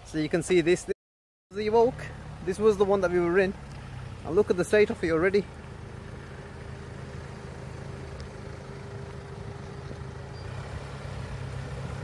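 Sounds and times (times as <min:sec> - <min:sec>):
car engine idling: 0:01.5 - 0:12.0.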